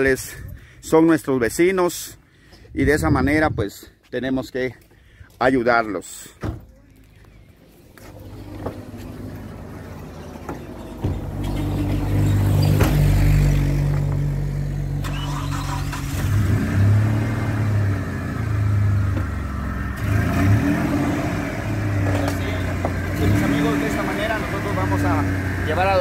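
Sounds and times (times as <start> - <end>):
car engine starting and revving: 8.0 - 26.0.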